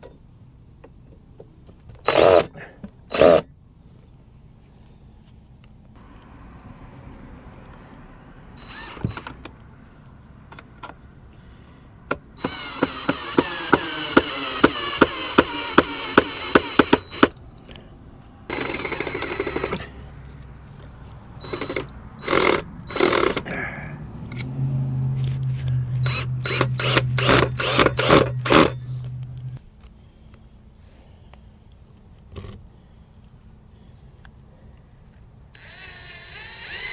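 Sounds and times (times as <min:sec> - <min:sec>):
power tool running with clicks: 0:02.0 - 0:02.5, 0:03.1 - 0:03.5, 0:08.6 - 0:09.5, 0:12.4 - 0:17.7, 0:18.5 - 0:20.0, 0:21.4 - 0:23.5, 0:25.2 - 0:29.6, 0:35.5 - 0:36.9.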